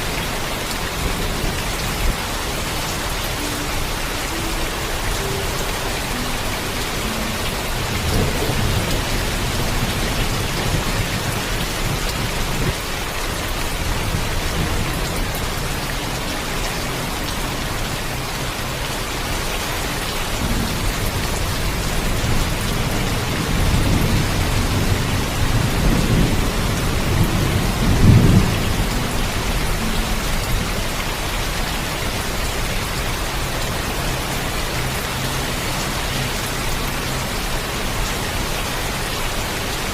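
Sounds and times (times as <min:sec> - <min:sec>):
heavy rain falling: 0:00.0 - 0:39.9
thunder rumbling: 0:04.3 - 0:12.8.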